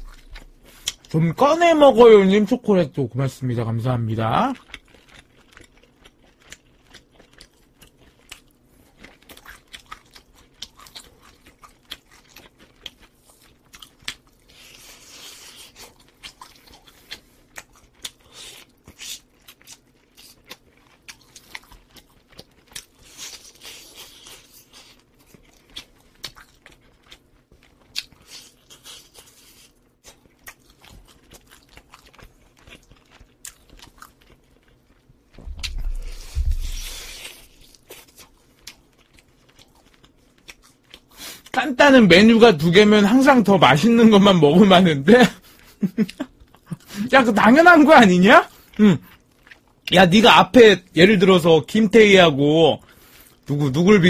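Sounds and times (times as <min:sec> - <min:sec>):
close chewing and biting: 0:00.0 - 0:01.2, 0:04.2 - 0:41.6, 0:45.4 - 0:50.0.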